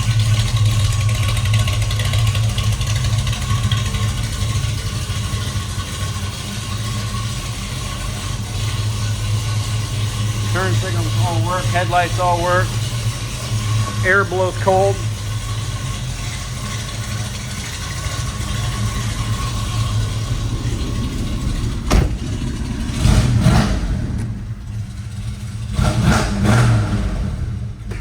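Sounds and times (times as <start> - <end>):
car engine idling: 0.0 - 28.0
air conditioning blowing: 18.1 - 24.7.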